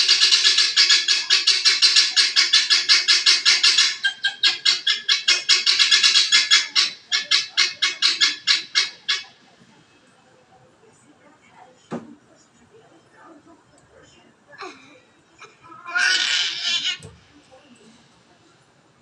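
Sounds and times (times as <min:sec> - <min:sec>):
guinea fowl calling: 0:00.0 - 0:09.5, 0:15.4 - 0:17.1.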